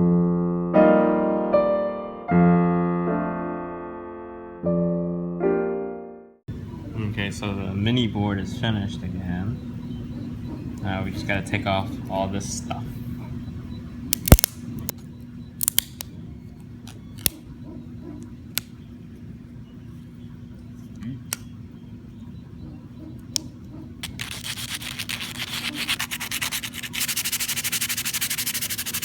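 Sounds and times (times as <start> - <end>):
plastic clicks and snaps: 14.1 - 15.0, 15.6 - 16.1
sandpaper rubbing: 24.0 - 29.0.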